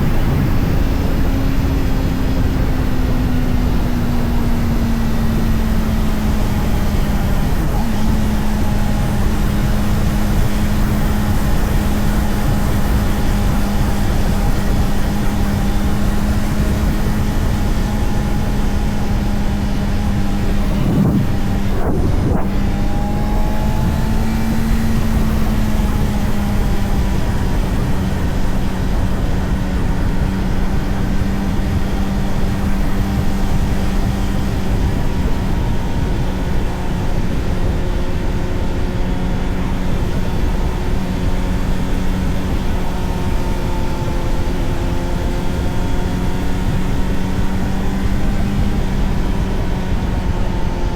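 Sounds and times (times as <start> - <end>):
wind rush: 0.0 - 37.8
motorcycle engine cruising: 0.0 - 50.9.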